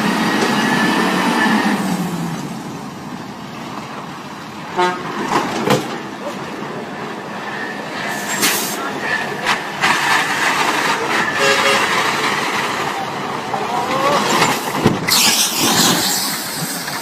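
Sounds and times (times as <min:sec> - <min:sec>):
knocks and clanks: 0:05.2 - 0:06.1, 0:14.2 - 0:15.9
heavy machinery din: 0:07.3 - 0:17.0.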